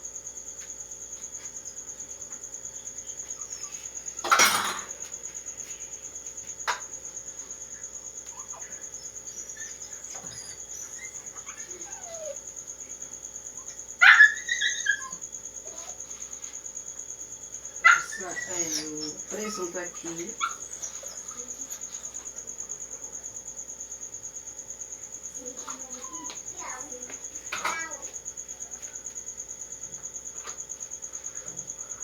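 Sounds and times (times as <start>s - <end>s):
crickets chirring: 0.0s - 32.0s
dog barking and yelping: 8.2s - 12.6s, 13.5s - 16.2s, 17.8s - 23.2s, 25.7s - 26.8s.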